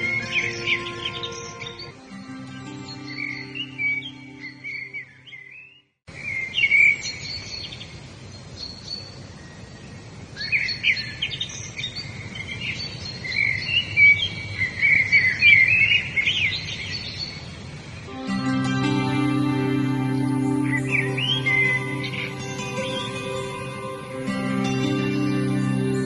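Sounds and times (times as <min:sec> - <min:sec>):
soft instrumental music: 0:00.0 - 0:05.6, 0:18.1 - 0:26.0
songbirds chirping: 0:00.0 - 0:26.0
background hiss: 0:16.1 - 0:26.0.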